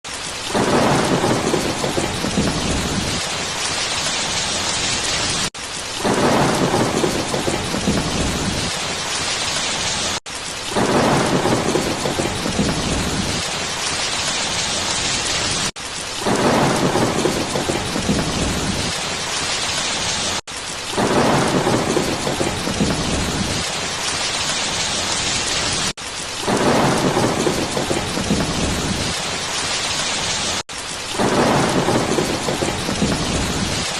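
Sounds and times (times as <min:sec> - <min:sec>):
heavy rain: 0:00.1 - 0:33.9
low rumble of thunder: 0:00.4 - 0:03.6, 0:06.0 - 0:09.5, 0:10.7 - 0:13.8, 0:14.5 - 0:19.2, 0:20.9 - 0:24.0, 0:26.4 - 0:30.4, 0:31.2 - 0:33.9.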